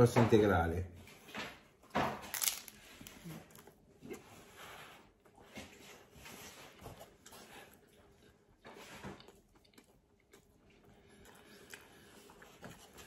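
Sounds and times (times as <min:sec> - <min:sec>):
faint wet chewing: 0:03.0 - 0:13.0.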